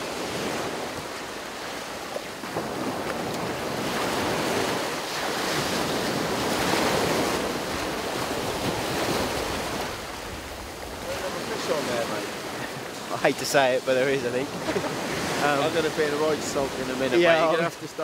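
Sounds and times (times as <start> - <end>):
surf breaking on beach: 0.0 - 18.0.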